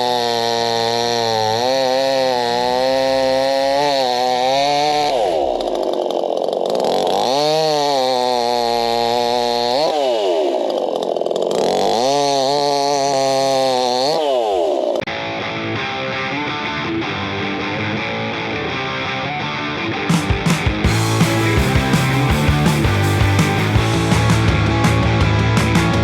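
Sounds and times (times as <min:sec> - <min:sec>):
chainsaw revving: 0:00.0 - 0:15.2, 0:20.0 - 0:26.0
music: 0:15.1 - 0:26.0.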